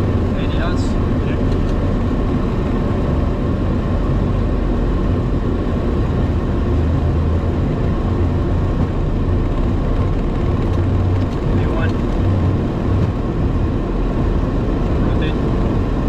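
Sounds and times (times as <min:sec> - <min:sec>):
airliner engines at takeoff: 0:00.0 - 0:16.0.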